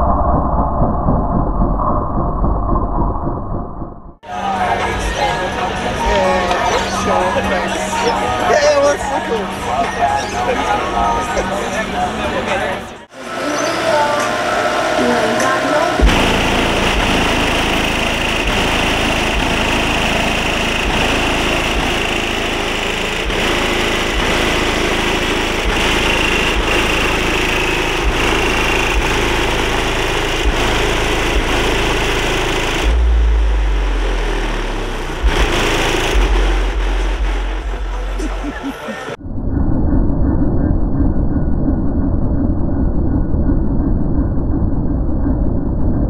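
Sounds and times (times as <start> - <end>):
loud deep rumble: 0.0 - 8.5, 10.8 - 46.0
car engine running: 2.7 - 39.2.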